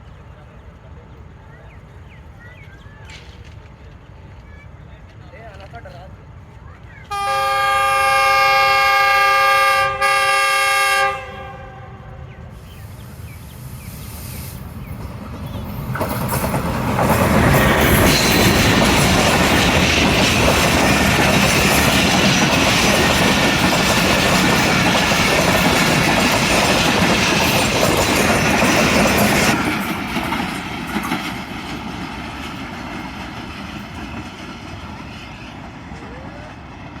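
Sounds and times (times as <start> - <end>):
passenger train passing: 0.0 - 37.0
train wheels clattering over rail joints: 14.8 - 35.6.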